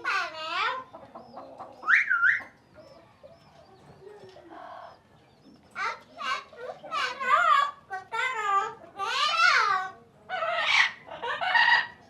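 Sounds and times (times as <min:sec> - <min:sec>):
faint high bird chirping: 0:00.0 - 0:07.5.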